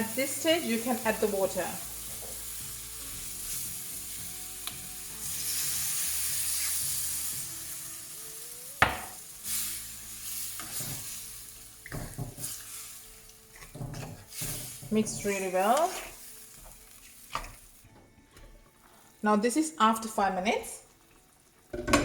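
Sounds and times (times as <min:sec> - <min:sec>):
curry sizzling in a pan: 0:00.0 - 0:17.9, 0:18.8 - 0:22.0
water hissing in hot pan: 0:00.0 - 0:17.9
spoon knocking on pan: 0:08.8 - 0:09.2, 0:21.7 - 0:22.0
stirring and scraping: 0:10.3 - 0:17.9.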